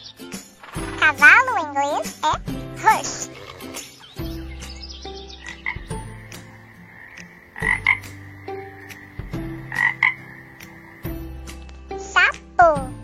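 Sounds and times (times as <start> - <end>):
light background music: 0.0 - 13.0
frog croaking: 3.0 - 3.9, 5.4 - 11.3.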